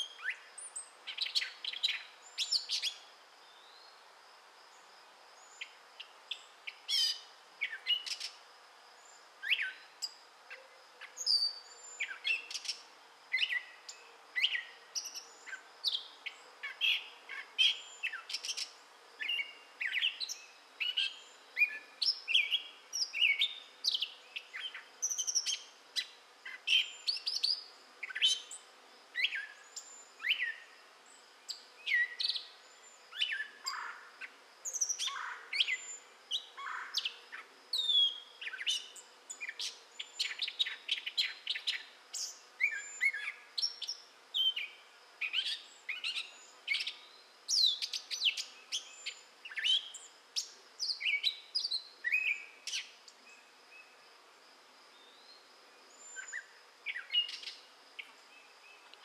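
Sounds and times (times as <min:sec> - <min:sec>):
bird singing varied notes: 0:55.0 - 0:59.0.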